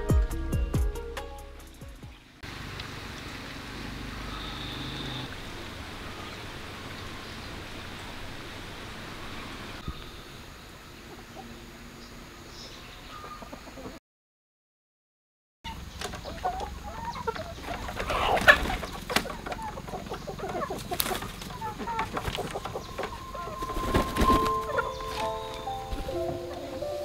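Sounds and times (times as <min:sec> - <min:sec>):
music: 0:00.0 - 0:02.4, 0:23.9 - 0:27.0
chickens clucking: 0:13.0 - 0:14.0, 0:15.7 - 0:27.0.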